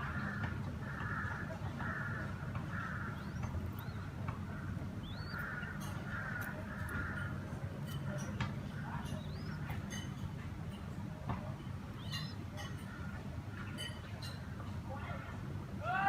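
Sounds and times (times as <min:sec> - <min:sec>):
harsh hoarse bird calls: 0:00.0 - 0:10.2, 0:11.8 - 0:14.4
thin rising bird chirps: 0:02.9 - 0:04.2, 0:05.0 - 0:06.2, 0:09.0 - 0:10.2, 0:11.9 - 0:12.7.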